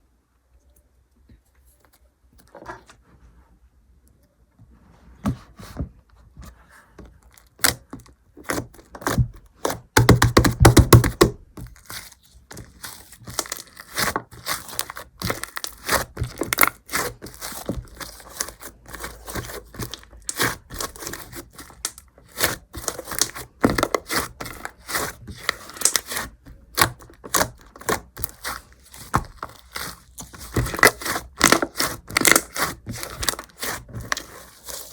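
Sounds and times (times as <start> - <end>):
slime crackling and tearing: 11.0 - 34.9.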